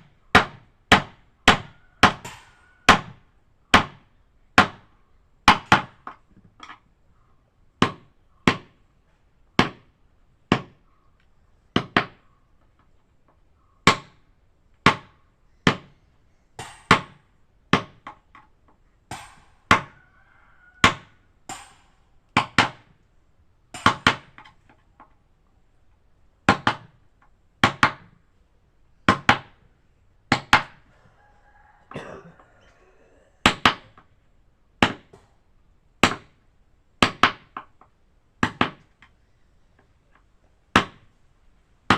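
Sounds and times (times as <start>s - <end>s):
hammer striking: 16.6s - 17.2s, 19.1s - 19.9s, 21.5s - 22.8s.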